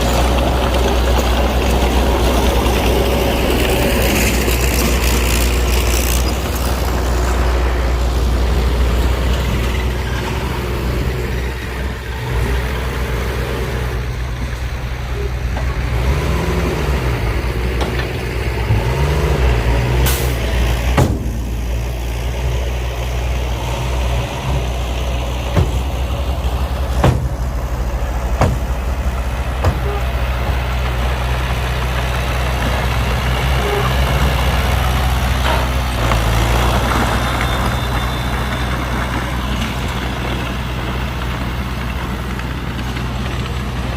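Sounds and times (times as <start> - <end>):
diesel earthmoving machinery running: 0.0 - 43.9
sharp knocks: 21.0 - 21.7, 27.0 - 27.4, 28.4 - 28.8.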